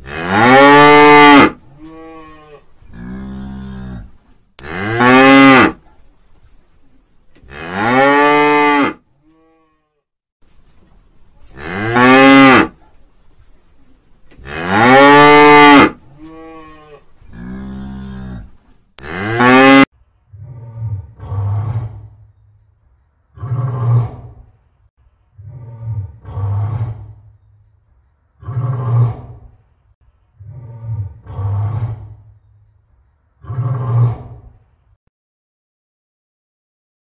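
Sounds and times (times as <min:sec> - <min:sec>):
cow mooing: 0:00.0 - 0:05.8, 0:07.5 - 0:10.0, 0:14.4 - 0:22.1
cow grunting calls: 0:14.4 - 0:22.2, 0:25.4 - 0:27.3, 0:30.4 - 0:32.3.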